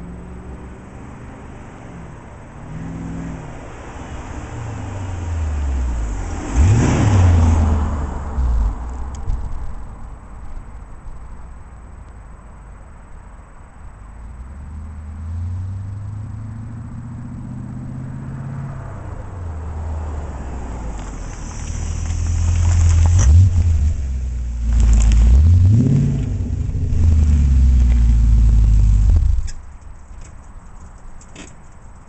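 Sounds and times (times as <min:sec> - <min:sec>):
car engine revving: 0:02.5 - 0:09.2, 0:14.3 - 0:29.6.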